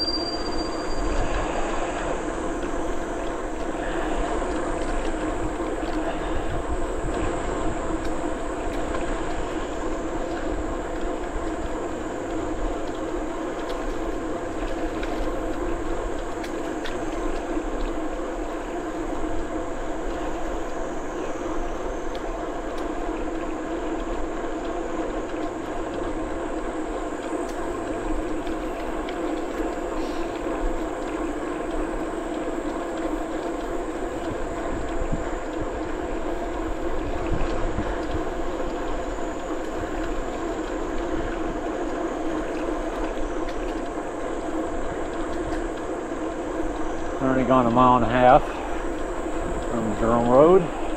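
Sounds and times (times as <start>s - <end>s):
bicycle tyres rolling on pavement: 0.0s - 50.9s.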